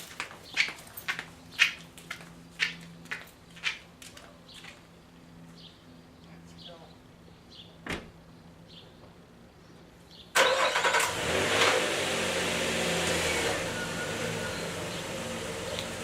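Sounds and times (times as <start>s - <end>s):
car engine starting and idling: 10.3s - 16.0s.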